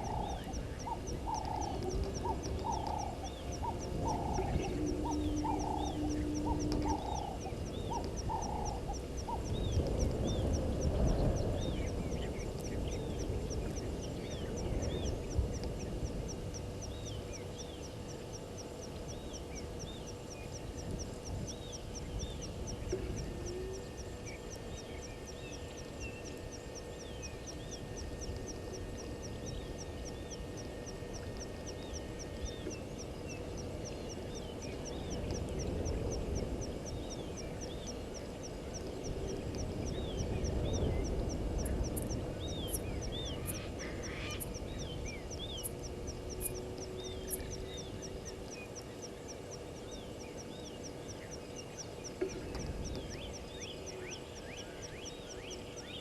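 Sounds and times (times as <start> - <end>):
low rumble: 0.0 - 54.5
birds calling: 0.0 - 56.0
insect ticking: 0.0 - 56.0.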